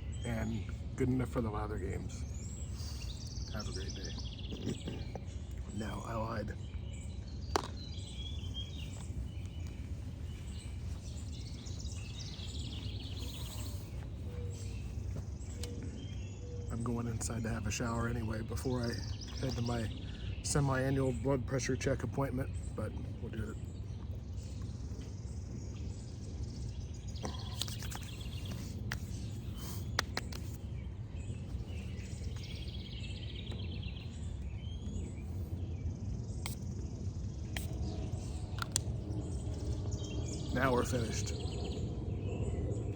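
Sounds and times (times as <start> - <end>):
low outdoor rumble: 0.0 - 27.6, 28.2 - 42.9
faint bird chirps: 0.0 - 42.9
sharp click: 30.0 - 30.6.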